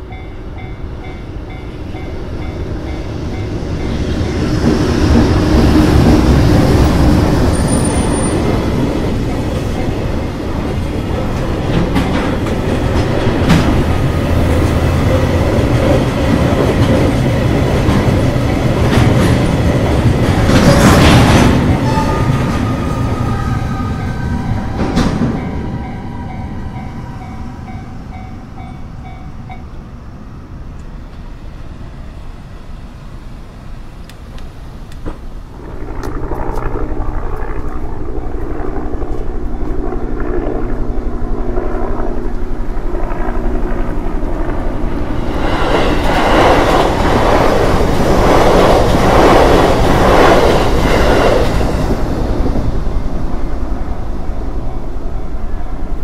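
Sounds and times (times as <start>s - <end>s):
crossing warning bell ringing: 0.0s - 4.9s, 9.3s - 13.1s, 21.4s - 30.3s
freight train rolling: 0.0s - 56.0s
loud rushing noise: 42.1s - 54.6s.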